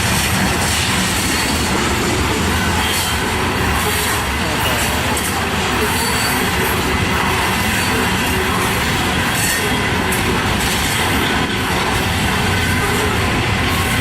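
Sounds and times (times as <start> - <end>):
train wheels rumbling on rail: 0.0 - 14.0
high wheel squeal: 0.9 - 10.2.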